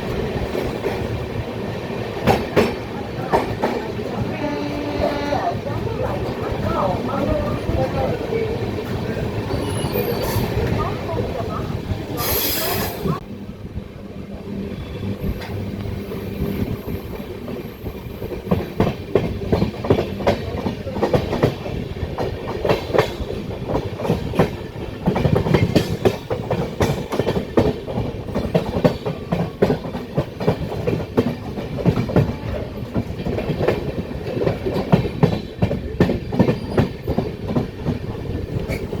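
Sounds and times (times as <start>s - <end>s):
train rumble: 0.0s - 39.0s
train wheels clacking over rail joints: 2.1s - 11.1s, 16.6s - 39.0s.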